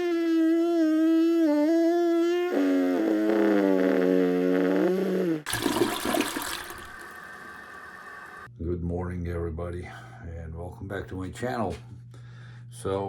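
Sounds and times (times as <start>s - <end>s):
toilet flushing: 5.5s - 8.5s.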